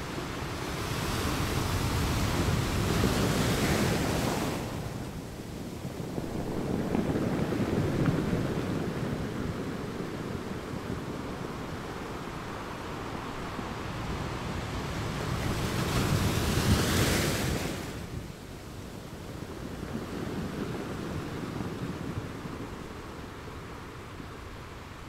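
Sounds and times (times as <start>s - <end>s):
wind rumble on microphone: 0.0s - 25.0s
sea waves breaking on shore: 0.1s - 18.4s.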